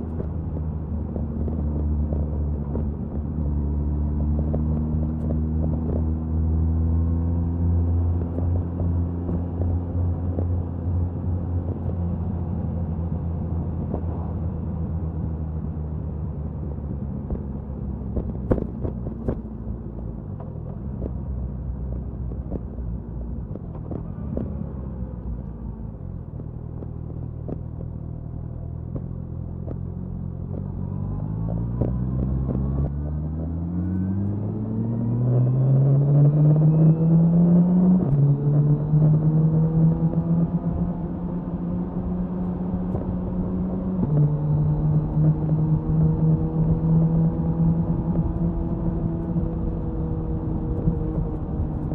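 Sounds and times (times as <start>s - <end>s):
wind noise on microphone: 36.5s - 51.9s.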